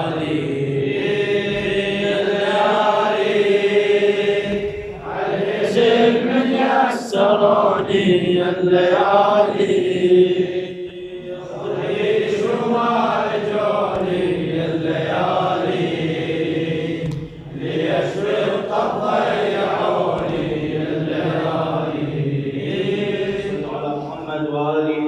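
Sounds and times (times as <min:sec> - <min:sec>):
man chanting: 0:05.0 - 0:15.8, 0:17.6 - 0:25.0.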